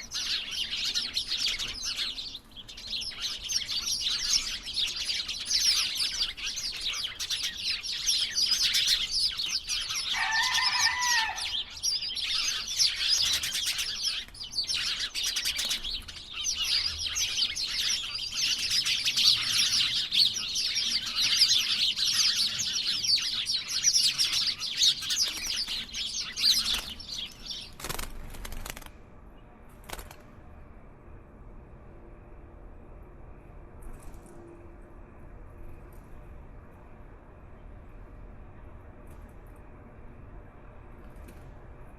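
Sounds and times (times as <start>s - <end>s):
flock of small birds chirping: 0.0s - 28.8s
lower longer bird call: 10.0s - 12.1s.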